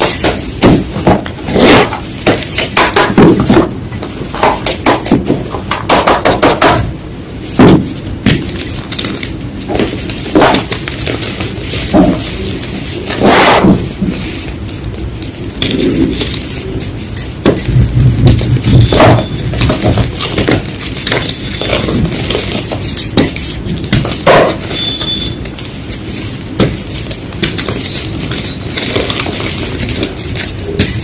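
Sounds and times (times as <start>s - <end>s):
chalk crunching and crumbling: 17.8s - 30.8s.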